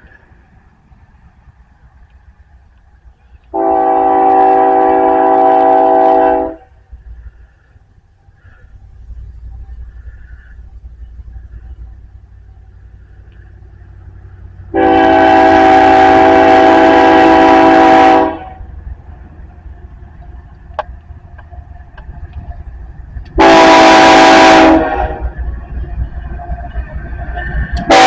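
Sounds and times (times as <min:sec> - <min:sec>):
locomotive air horn blasts: 0:03.5 - 0:06.8, 0:14.7 - 0:18.7, 0:23.4 - 0:25.4, 0:27.8 - 0:28.0.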